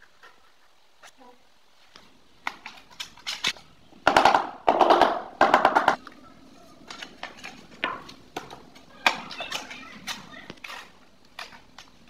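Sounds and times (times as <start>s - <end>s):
hard objects clicking and knocking: 2.4s - 6.1s, 6.8s - 12.0s.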